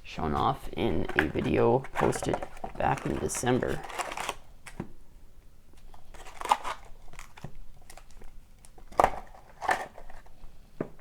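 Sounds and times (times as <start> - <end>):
packaging crinkling and rustling: 1.0 - 4.8, 5.8 - 10.4.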